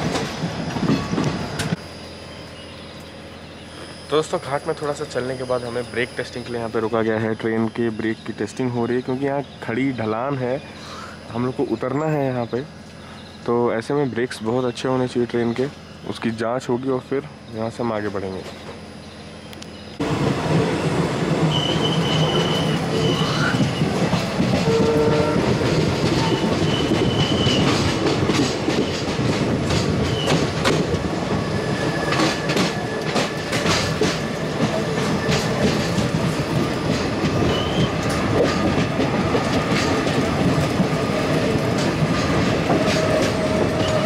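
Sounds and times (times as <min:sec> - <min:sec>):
train wheels rumbling on rails: 0:00.0 - 0:44.0
high-pitched wheel squeals: 0:21.5 - 0:23.9
wheels clattering over rail joints: 0:23.4 - 0:44.0.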